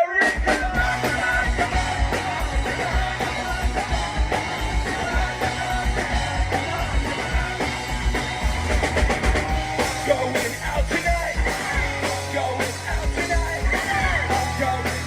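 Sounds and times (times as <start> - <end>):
punk rock band playing: 0.0 - 15.0
fast kick drum beat: 0.3 - 15.0.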